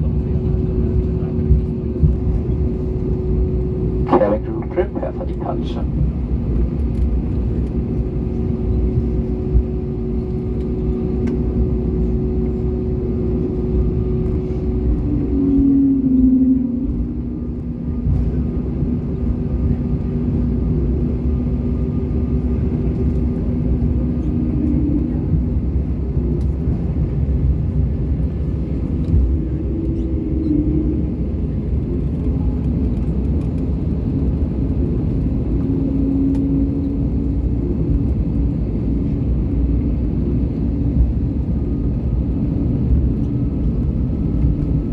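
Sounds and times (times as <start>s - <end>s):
airplane cabin engine rumble: 0.0s - 44.9s
steady humming tones: 0.0s - 44.9s.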